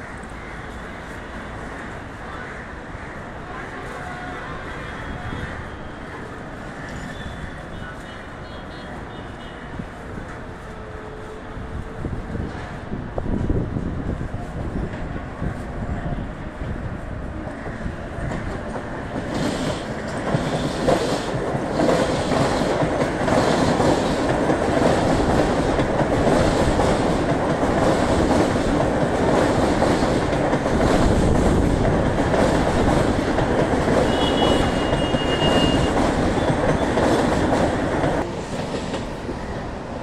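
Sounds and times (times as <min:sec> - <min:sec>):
train wheels rumbling and clattering: 0:11.8 - 0:40.0.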